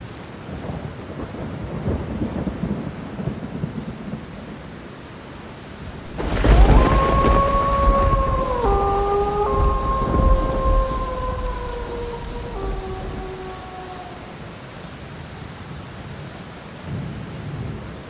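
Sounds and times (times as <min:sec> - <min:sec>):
rain-like noise wash: 0:00.0 - 0:18.0
low thunder-like rumbles: 0:06.0 - 0:14.6.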